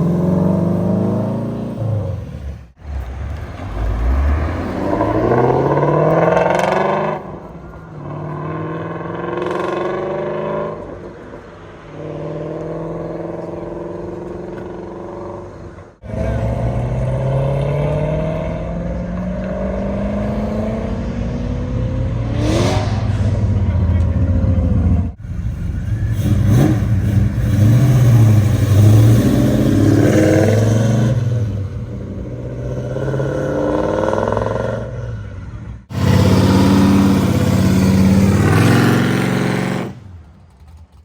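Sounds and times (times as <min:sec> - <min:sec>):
car engine accelerating hard: 0:00.0 - 0:10.9, 0:35.8 - 0:41.0
second car pulling away: 0:35.9 - 0:41.0.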